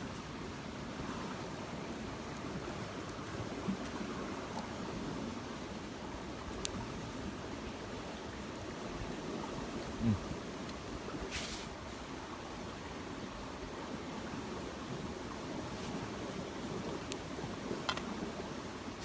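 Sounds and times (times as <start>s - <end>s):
short hiss: 11.3s - 11.8s.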